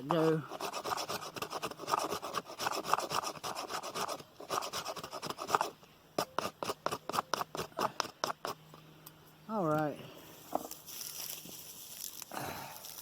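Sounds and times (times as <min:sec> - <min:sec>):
knife scraping wood shavings: 0:00.1 - 0:08.6.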